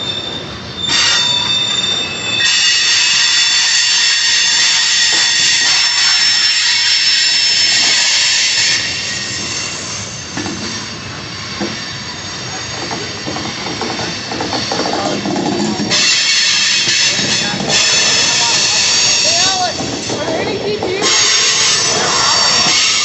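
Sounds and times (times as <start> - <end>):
train wheels squealing on rails: 0.0 - 23.0
rumble and clatter of rolling cars: 12.7 - 15.9, 19.6 - 21.2.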